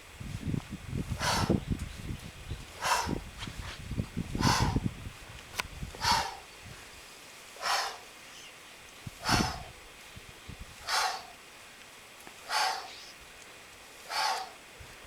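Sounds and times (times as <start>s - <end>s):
person exhaling forcefully: 1.2s - 1.6s, 2.8s - 3.2s, 4.4s - 4.9s, 6.0s - 6.4s, 7.6s - 8.1s, 9.2s - 9.7s, 10.8s - 11.3s, 12.5s - 13.0s, 14.1s - 14.6s.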